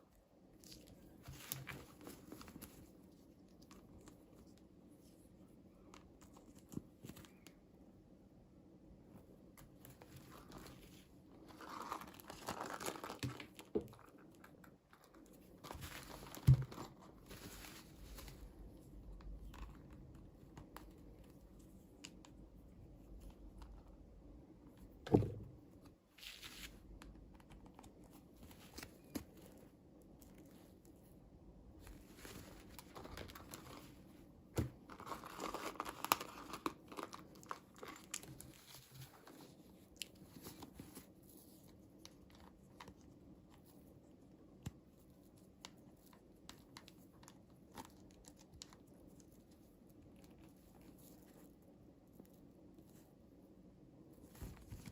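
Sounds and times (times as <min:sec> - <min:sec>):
packaging crinkling and tearing: 0:11.4 - 0:14.3, 0:34.8 - 0:41.0.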